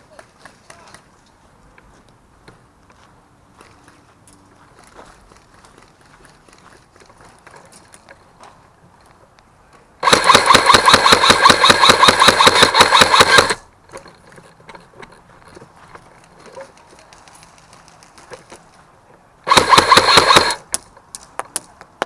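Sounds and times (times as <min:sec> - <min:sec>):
airsoft gun firing full auto: 0:10.0 - 0:13.6, 0:19.5 - 0:20.6
gun motor whine: 0:10.0 - 0:13.6, 0:19.5 - 0:20.6.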